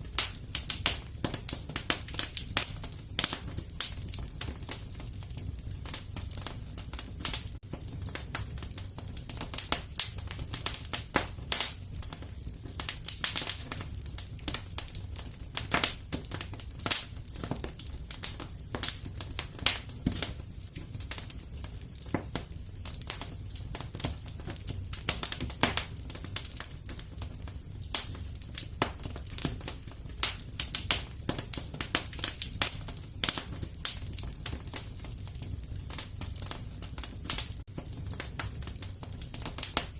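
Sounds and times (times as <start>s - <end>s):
low rumble of flames: 0.0s - 39.9s
wood fire pops and snaps: 0.0s - 39.9s.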